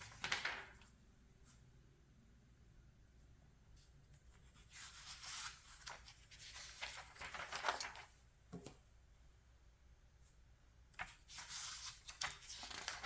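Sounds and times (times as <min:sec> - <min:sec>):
magazine pages rustling: 0:00.0 - 0:00.8, 0:04.6 - 0:08.2, 0:11.0 - 0:13.0.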